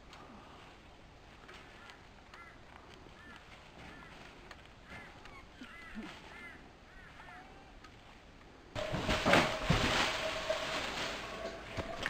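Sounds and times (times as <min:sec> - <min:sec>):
birds calling faintly: 0:00.1 - 0:08.7.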